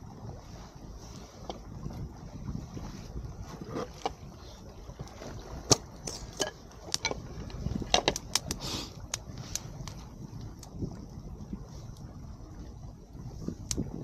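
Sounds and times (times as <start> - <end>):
wind rumble on microphone: 0.0 - 14.0
campfire crackling and popping: 5.0 - 11.1, 13.6 - 13.9.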